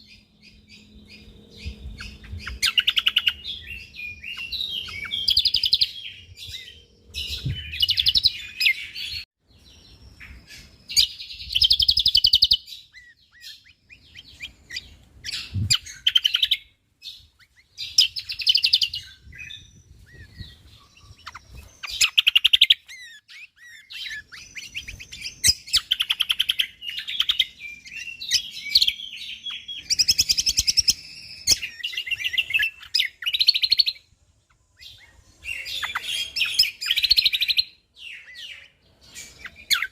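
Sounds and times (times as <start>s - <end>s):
bird singing rapid chattering song: 0.0s - 39.9s.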